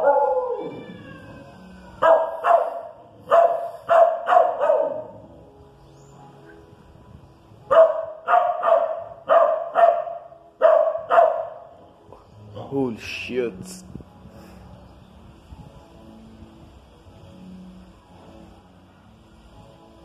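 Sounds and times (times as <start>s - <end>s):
dogs barking rapidly: 0.0s - 0.4s, 2.0s - 5.2s, 7.7s - 11.7s.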